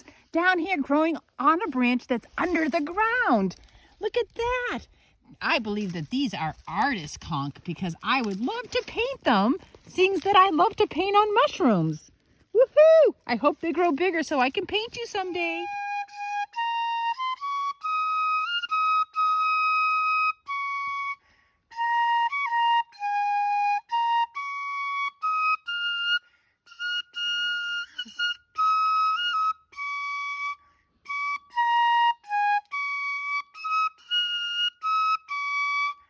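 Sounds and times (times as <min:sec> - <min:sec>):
solo flute melody: 0:12.5 - 0:13.4, 0:14.9 - 0:36.0.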